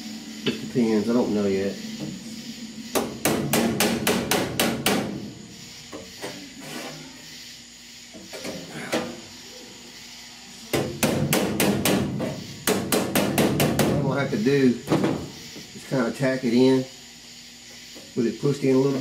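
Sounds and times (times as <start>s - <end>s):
hammer striking sheet steel: 2.9s - 5.2s, 10.8s - 14.0s.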